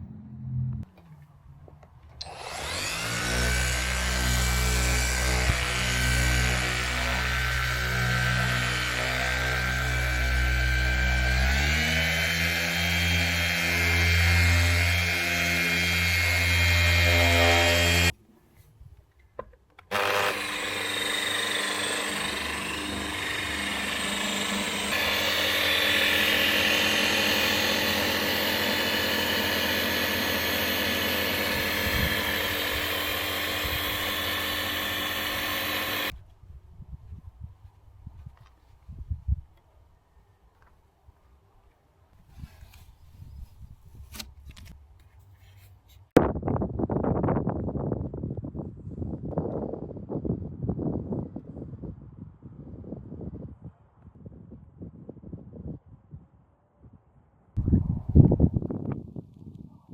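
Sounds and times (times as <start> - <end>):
electric machine polisher running: 2.2 - 18.1, 19.9 - 36.1.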